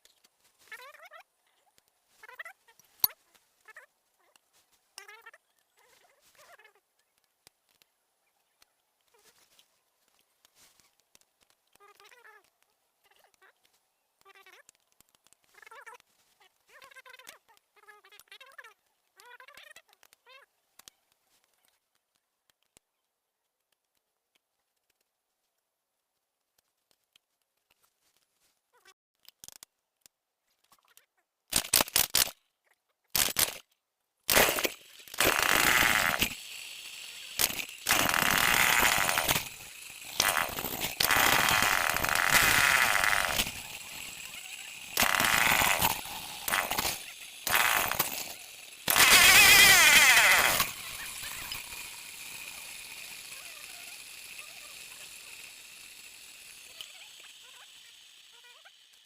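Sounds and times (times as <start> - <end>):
chainsaw starting and revving: 34.3 - 59.0.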